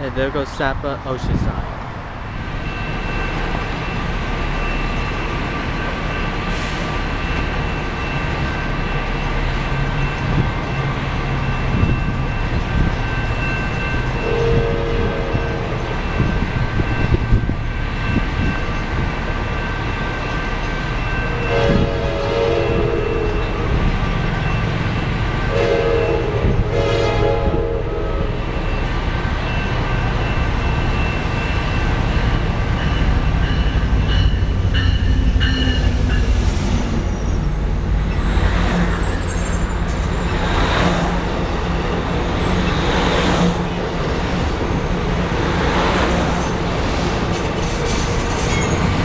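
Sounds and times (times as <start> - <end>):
train rumbling: 0.0 - 49.0
train horn: 14.2 - 15.8, 21.3 - 23.9, 25.5 - 28.4.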